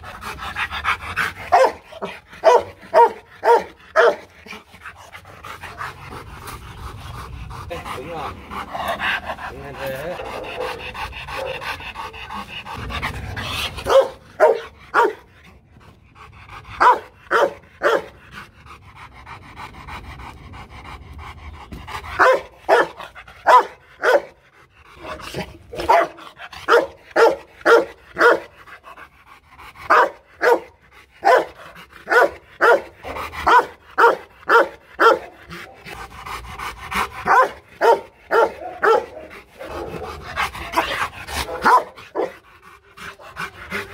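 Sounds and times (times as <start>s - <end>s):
dog panting: 0.0s - 43.9s
dog barking: 1.5s - 4.3s, 10.2s - 10.8s, 11.4s - 11.6s, 13.8s - 15.2s, 16.8s - 18.2s, 22.2s - 24.4s, 25.8s - 28.5s, 29.9s - 35.8s, 37.2s - 42.4s.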